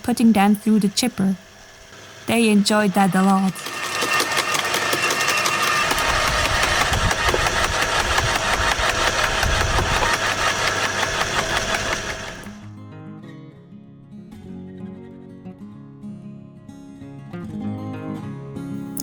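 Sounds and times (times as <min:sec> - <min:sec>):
wood chipper rattling: 0:01.4 - 0:12.6.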